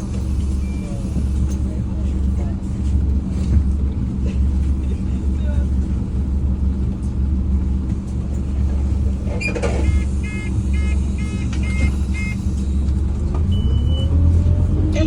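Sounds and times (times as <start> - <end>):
bus engine rumbling: 0.0 - 15.0
short electronic beeps: 9.4 - 12.5, 13.5 - 14.1.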